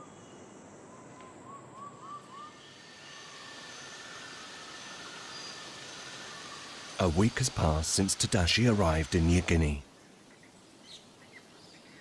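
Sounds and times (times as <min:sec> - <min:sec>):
steady hiss: 0:02.6 - 0:12.0.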